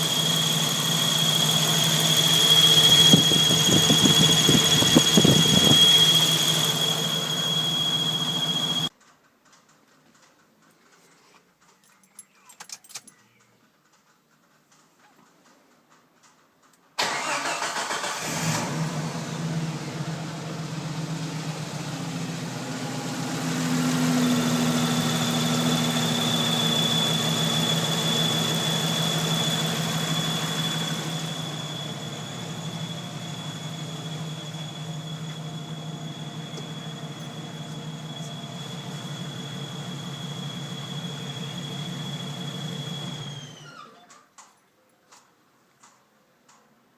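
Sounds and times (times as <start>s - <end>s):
car engine starting and idling: 0.0s - 8.9s, 17.0s - 43.8s
steady high whine: 0.0s - 8.9s, 19.5s - 43.6s.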